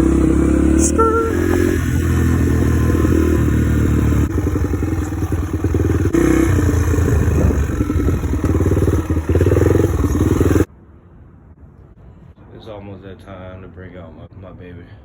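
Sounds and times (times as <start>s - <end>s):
dirt bike engine revving: 0.0s - 10.7s.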